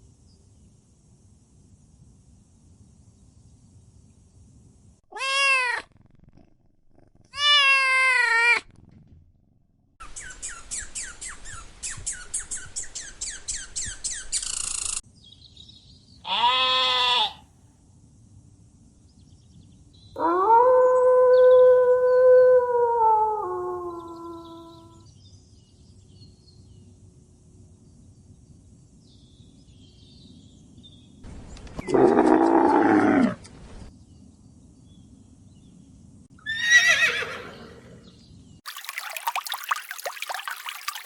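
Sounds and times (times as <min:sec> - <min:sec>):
cat meowing: 0:05.1 - 0:05.9, 0:07.3 - 0:08.7
rapid chirping calls: 0:10.0 - 0:15.0
long drawn-out animal call: 0:16.2 - 0:17.5.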